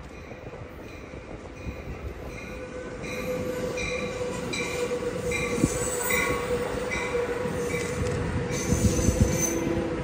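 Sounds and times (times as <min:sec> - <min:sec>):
steady train squeal: 0:00.0 - 0:10.0
train rumbling past: 0:00.0 - 0:10.0.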